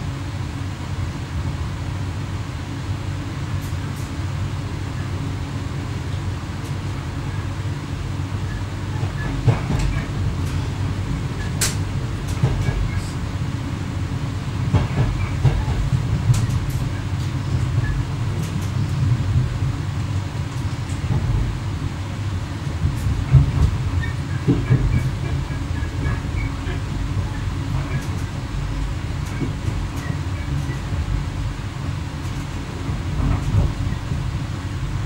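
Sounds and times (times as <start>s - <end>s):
train low rumble: 0.0s - 35.0s
sharp clicks and knocks: 9.0s - 10.7s, 11.4s - 13.2s, 14.7s - 21.5s, 22.8s - 26.9s.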